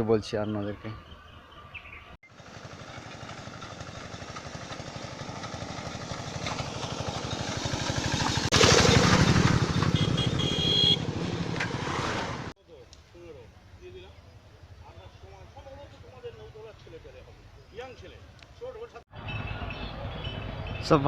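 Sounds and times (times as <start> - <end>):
small vehicle engine running: 2.3 - 12.5.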